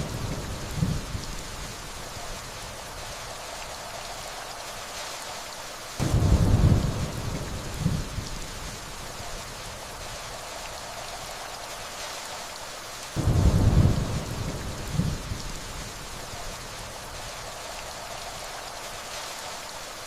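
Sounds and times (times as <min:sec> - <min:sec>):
distant thunder rumbling: 0:00.0 - 0:03.2, 0:06.0 - 0:11.2, 0:13.2 - 0:18.8
steady rainfall: 0:00.0 - 0:20.0.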